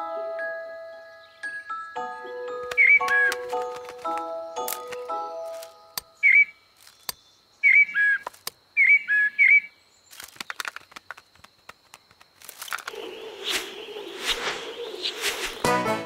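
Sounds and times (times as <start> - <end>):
cartoon bird chirping: 2.7 - 3.4.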